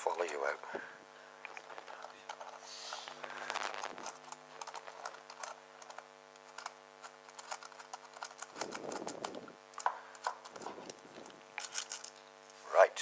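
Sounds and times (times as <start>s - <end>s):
steady low hum: 0.0s - 13.0s
scraping rustle: 1.6s - 9.5s.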